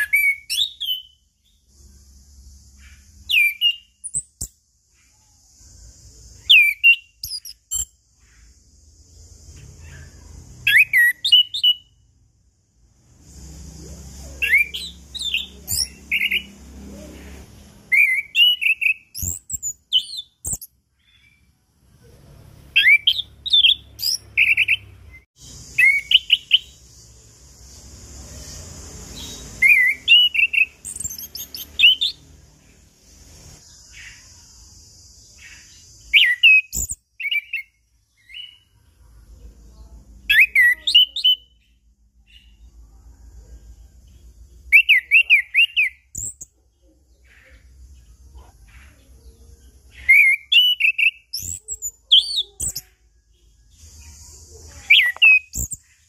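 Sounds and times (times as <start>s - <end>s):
thrush singing whistled notes: 0.0s - 12.3s, 13.1s - 21.6s, 22.7s - 38.8s, 40.2s - 42.8s, 44.6s - 46.5s, 49.9s - 56.0s
steady high hiss: 25.4s - 36.2s.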